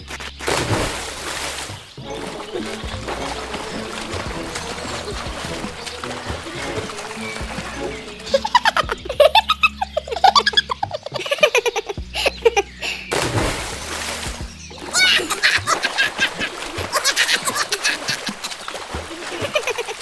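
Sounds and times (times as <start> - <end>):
background music: 0.0 - 20.0
high-pitched laughter and giggling: 8.2 - 13.0, 14.9 - 18.6, 19.2 - 20.0.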